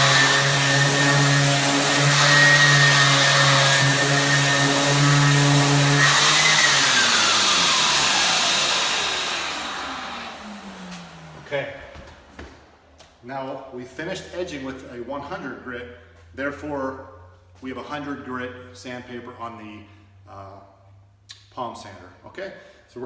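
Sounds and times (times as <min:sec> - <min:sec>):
motor spinning down: 0:00.0 - 0:11.4
palm sander motor hum and whine: 0:00.0 - 0:11.6.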